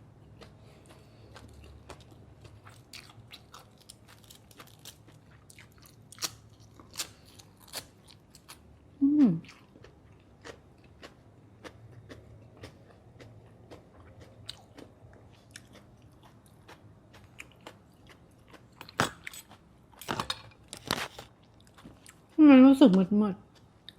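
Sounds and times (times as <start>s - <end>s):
person chewing and crunching: 0.1s - 8.7s, 9.4s - 20.0s, 20.6s - 22.4s
person humming: 9.0s - 9.4s.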